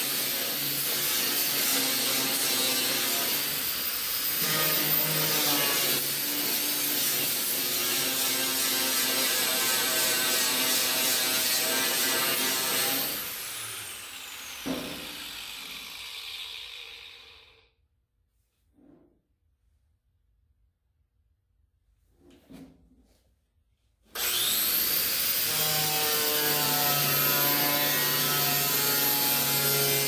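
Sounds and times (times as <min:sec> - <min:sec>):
angle grinder on metal: 0:00.0 - 0:17.7, 0:24.2 - 0:30.0
knock: 0:14.6 - 0:15.1.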